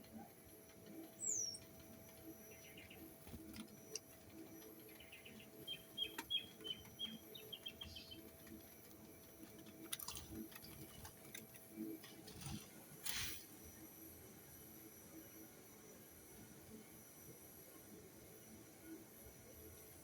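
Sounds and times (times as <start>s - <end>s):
small birds chirping: 0.8s - 11.3s
brief rustle: 12.2s - 13.5s.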